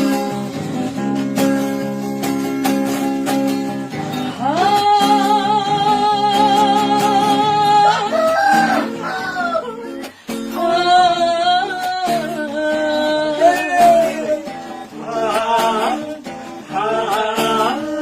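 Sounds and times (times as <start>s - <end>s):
acoustic guitar: 0.0s - 18.0s
man singing: 4.3s - 18.0s.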